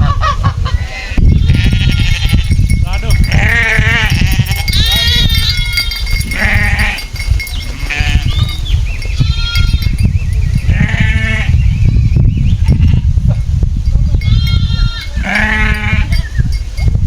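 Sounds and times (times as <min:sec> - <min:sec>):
farm animals bleating: 0:00.7 - 0:10.0, 0:10.6 - 0:11.6, 0:12.6 - 0:13.2, 0:14.1 - 0:16.4.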